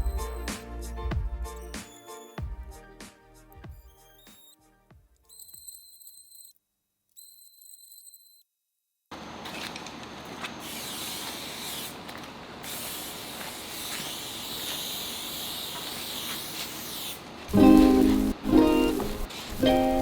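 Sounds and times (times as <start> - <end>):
pressure washer spraying water: 10.6 - 20.0
ukulele music: 17.5 - 20.0.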